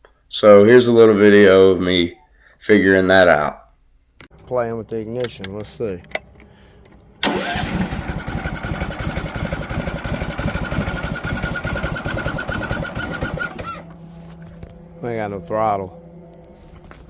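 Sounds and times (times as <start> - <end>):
generator engine running: 7.2 - 17.0.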